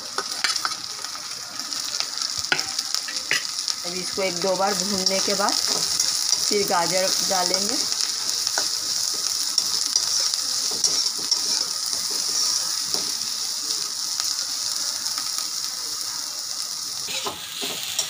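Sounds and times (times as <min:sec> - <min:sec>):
vegetables sizzling in hot oil: 0:00.0 - 0:18.0
metal spatula scraping and tapping: 0:09.6 - 0:13.2, 0:17.1 - 0:18.0.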